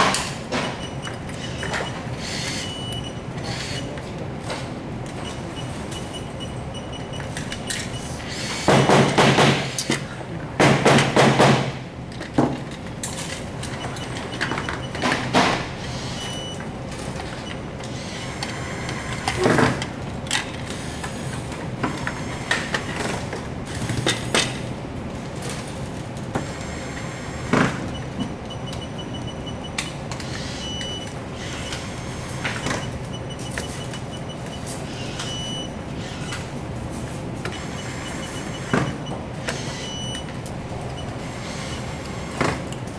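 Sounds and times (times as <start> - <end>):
loud noisy metalworking bursts: 0.0 - 4.1, 7.9 - 9.9, 17.9 - 19.8, 26.4 - 28.0, 30.2 - 33.0, 37.5 - 40.2, 41.1 - 42.6
steady background hum: 0.0 - 42.9
sharp knocks: 8.7 - 9.8, 10.6 - 11.8.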